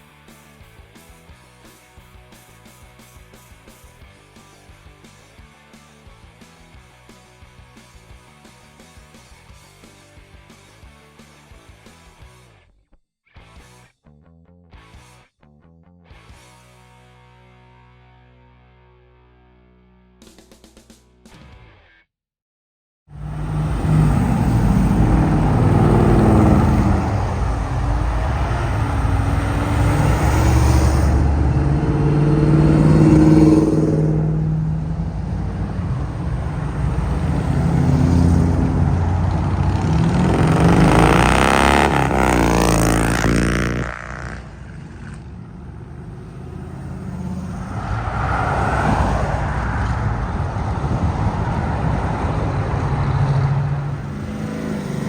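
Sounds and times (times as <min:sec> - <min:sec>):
car engines revving: 0:23.1 - 0:55.0
car going past: 0:23.2 - 0:55.0.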